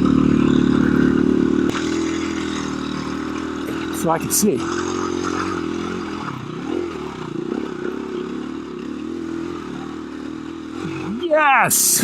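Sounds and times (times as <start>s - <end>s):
dirt bike engine climbing hill: 0.0s - 12.0s.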